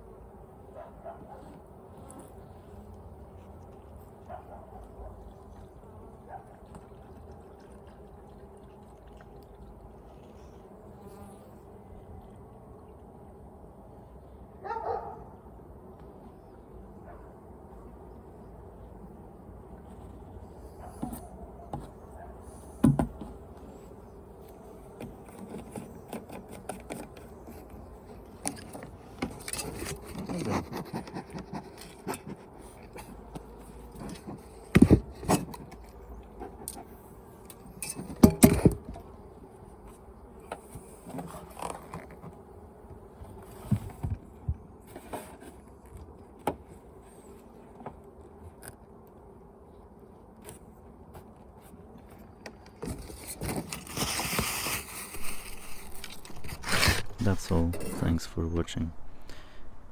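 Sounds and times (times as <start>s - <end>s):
wooden hive parts knocking and scraping: 24.8s - 36.9s, 37.5s - 39.2s, 50.4s - 59.9s.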